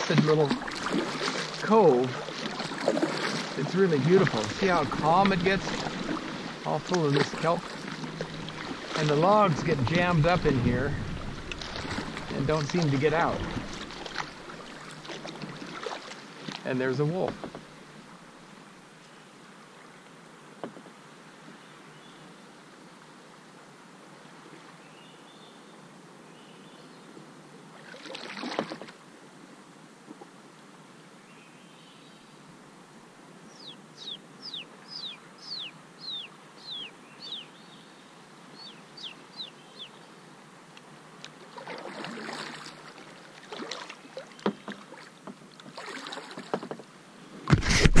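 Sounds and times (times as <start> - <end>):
paddle splashing water: 0.0 - 18.0, 27.7 - 29.0, 41.2 - 48.0.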